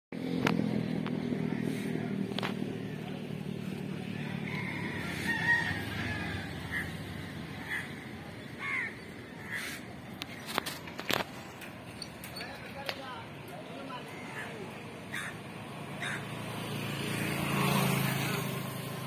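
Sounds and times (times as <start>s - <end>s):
birds calling: 0.8s - 16.4s.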